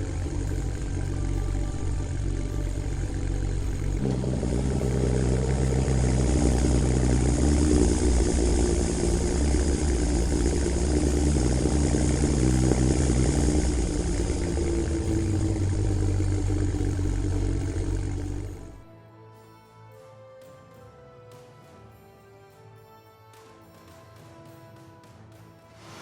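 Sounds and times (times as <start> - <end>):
heavy machinery engine running: 0.0 - 18.9.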